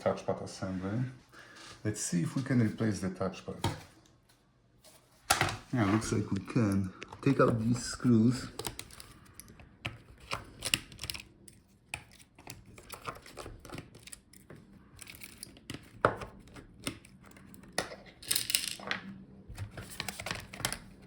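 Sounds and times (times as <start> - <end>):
small tools clicking and scraping plastic: 8.4 - 18.9.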